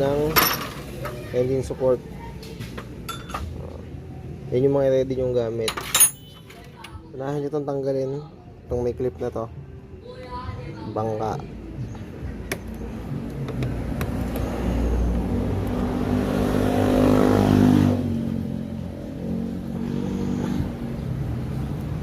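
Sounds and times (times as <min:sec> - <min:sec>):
vehicle engine passing by: 0:12.2 - 0:22.0.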